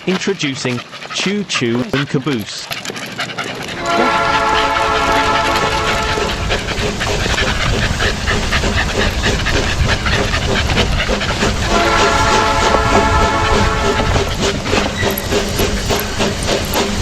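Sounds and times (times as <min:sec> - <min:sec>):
dogs panting: 0:00.0 - 0:17.0
held tones: 0:14.9 - 0:17.0.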